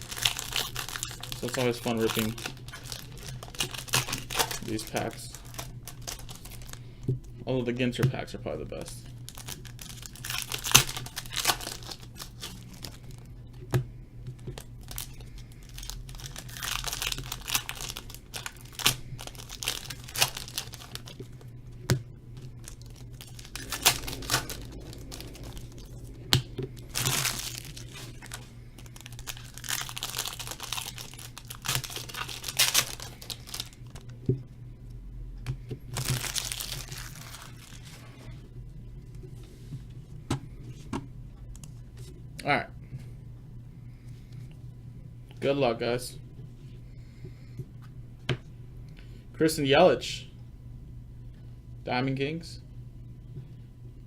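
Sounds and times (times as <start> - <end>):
foil wrappers tearing and crinkling: 0.0 - 6.8, 9.3 - 13.2, 14.8 - 21.4, 26.8 - 34.1, 35.9 - 38.1.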